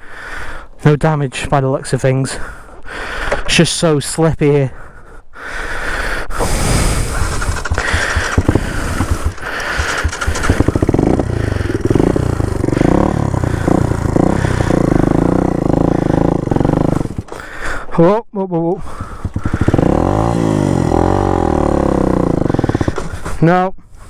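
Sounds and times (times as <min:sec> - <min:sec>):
dirt bike engine running: 0:06.9 - 0:17.5, 0:18.8 - 0:23.4.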